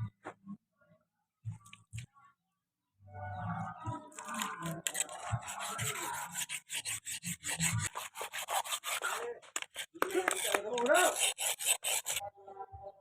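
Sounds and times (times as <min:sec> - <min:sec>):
abrasive rubbing strokes: 0:04.2 - 0:12.2.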